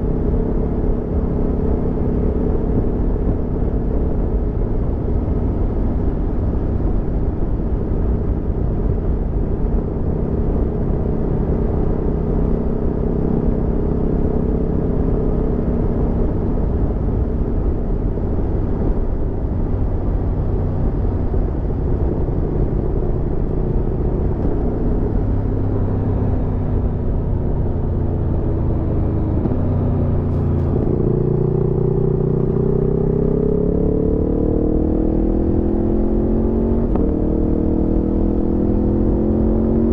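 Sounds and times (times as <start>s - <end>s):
motorcycle engine accelerating: 8.8s - 39.9s.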